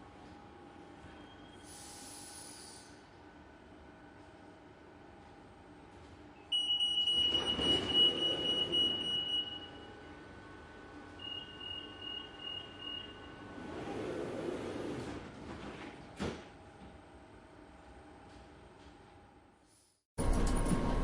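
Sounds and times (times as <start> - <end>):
train low hum: 2.8 - 6.5, 20.2 - 21.0
short beeps: 11.2 - 13.4.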